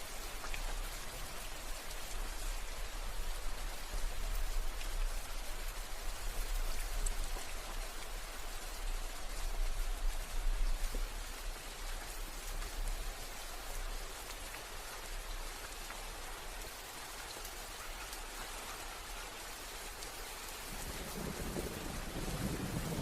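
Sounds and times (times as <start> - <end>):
rain falling: 0.0 - 23.0
low rumble of thunder: 20.5 - 23.0.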